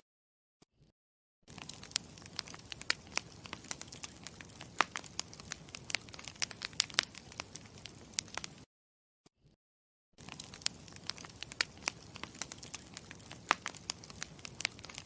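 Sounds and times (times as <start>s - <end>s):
campfire crackling: 1.5s - 8.7s, 10.2s - 15.0s.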